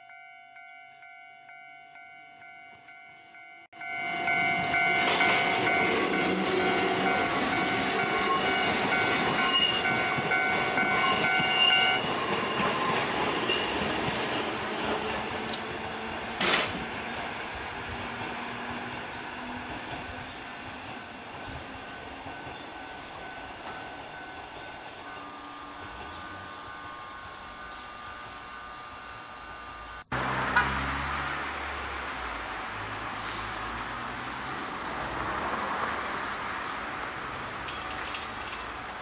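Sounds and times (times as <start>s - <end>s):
ringing crossing bell: 0.0s - 12.6s, 21.0s - 30.0s
train wheels clacking on rails: 3.8s - 26.9s, 37.2s - 39.0s.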